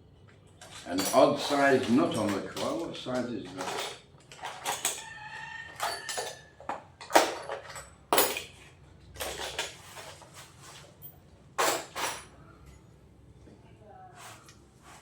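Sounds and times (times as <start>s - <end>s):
metal spanners clinking: 0.6s - 5.0s.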